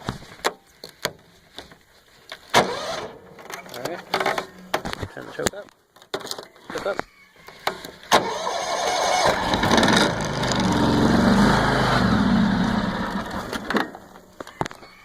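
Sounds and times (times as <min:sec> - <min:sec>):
lawn tractor engine cranking: 0:02.4 - 0:05.5, 0:07.6 - 0:14.6.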